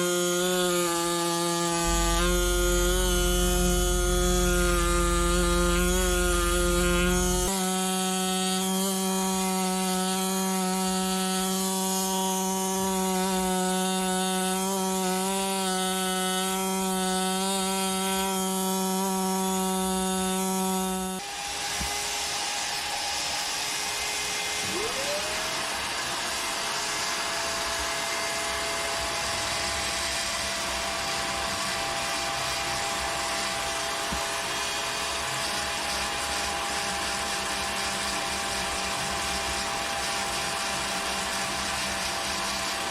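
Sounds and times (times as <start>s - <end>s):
rough grinding noise: 0.0s - 22.4s
motor whine: 0.0s - 42.9s
power tool pitched buzz: 0.0s - 42.9s.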